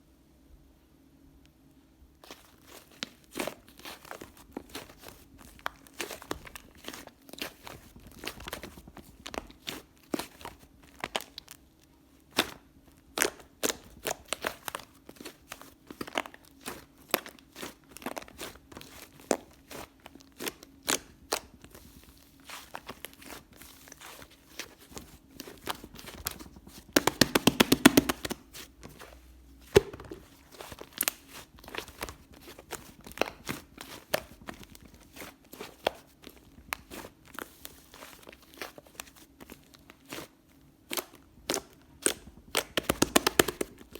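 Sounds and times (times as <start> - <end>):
slime squishing with sticky clicks: 12.3 - 43.9.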